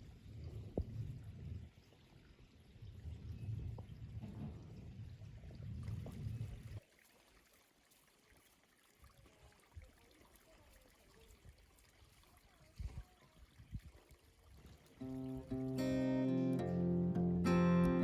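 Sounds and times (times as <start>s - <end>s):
liquid being poured: 14.9s - 17.6s.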